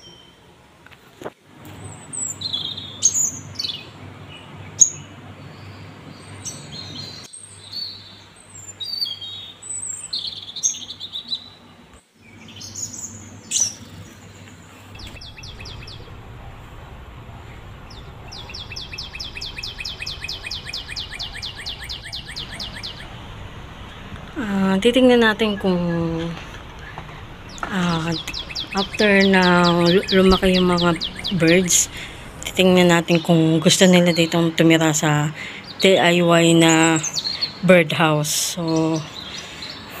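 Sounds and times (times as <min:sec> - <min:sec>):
bird fledgling chirping: 0:15.0 - 0:16.3, 0:17.4 - 0:37.6.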